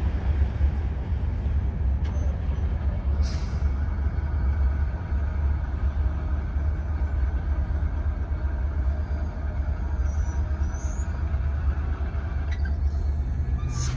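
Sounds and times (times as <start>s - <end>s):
freight train rumbling past: 0.0s - 13.9s
faint high squeals: 12.4s - 13.9s.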